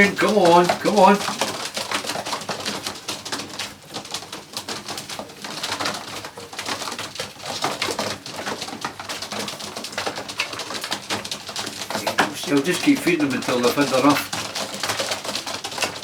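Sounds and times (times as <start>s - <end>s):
pigeons pecking and scuffling: 0.0s - 16.0s.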